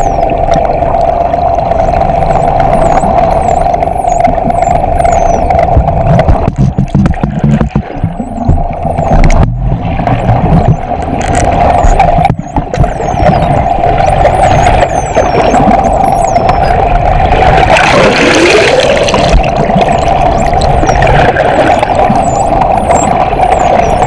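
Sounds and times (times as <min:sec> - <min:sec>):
boat engine drone underwater: 0:00.0 - 0:24.0
dolphins whistling: 0:02.4 - 0:05.7, 0:11.8 - 0:16.9, 0:20.0 - 0:24.0.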